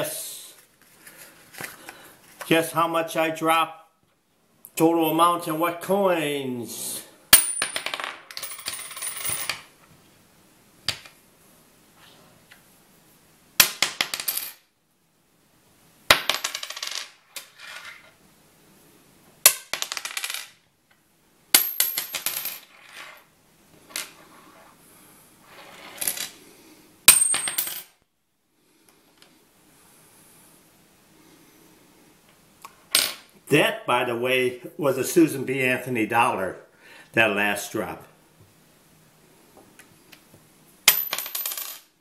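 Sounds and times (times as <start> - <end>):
coins clattering on wooden table: 7.4 - 9.7, 13.6 - 14.7, 16.1 - 18.2, 19.5 - 20.6, 21.6 - 24.7, 25.4 - 26.4, 27.1 - 28.0, 32.9 - 33.3, 40.9 - 42.0.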